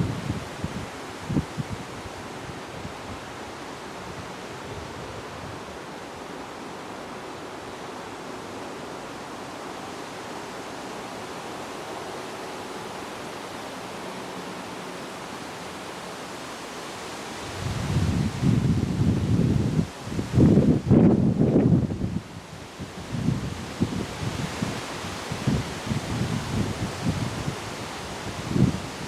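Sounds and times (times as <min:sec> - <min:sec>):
wind rushing: 0:17.4 - 0:22.2.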